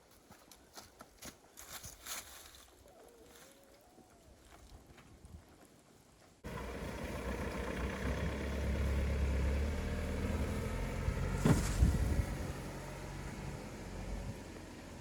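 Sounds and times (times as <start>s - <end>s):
pickup truck engine running: 6.4s - 15.0s.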